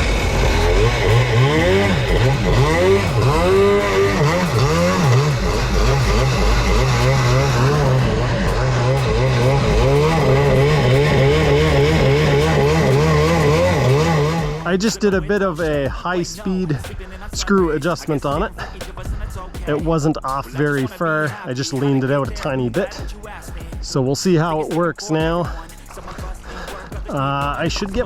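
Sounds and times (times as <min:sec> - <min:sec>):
jet ski engine revving: 0:00.0 - 0:15.7.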